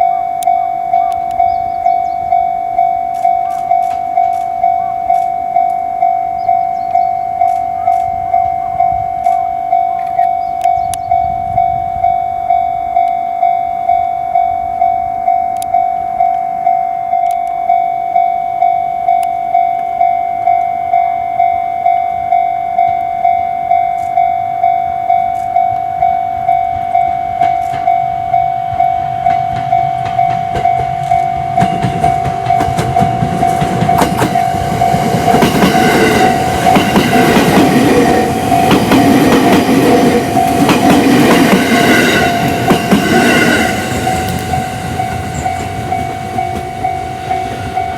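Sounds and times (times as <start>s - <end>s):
wheels clattering on rails: 0.0s - 10.9s, 25.2s - 47.9s
electric train passing: 0.0s - 47.9s
level crossing bell ringing: 0.0s - 47.9s.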